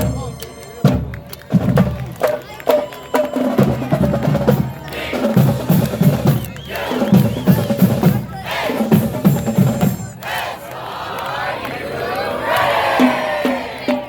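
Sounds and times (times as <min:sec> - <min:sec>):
snare drums beating: 0:00.0 - 0:10.3
bass drums beating: 0:03.6 - 0:10.2.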